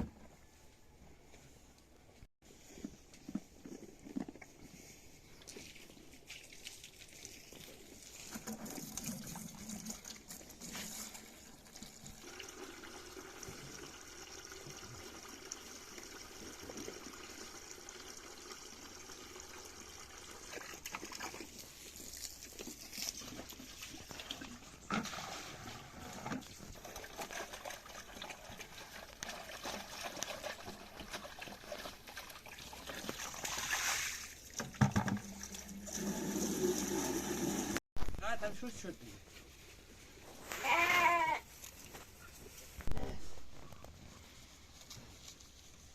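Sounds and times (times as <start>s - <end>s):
liquid trickling into a container: 5.7s - 23.0s.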